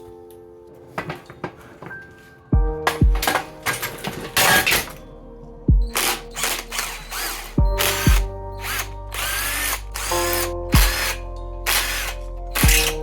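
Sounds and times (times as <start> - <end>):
background music: 0.0 - 13.0
power drill spinning: 6.0 - 13.0.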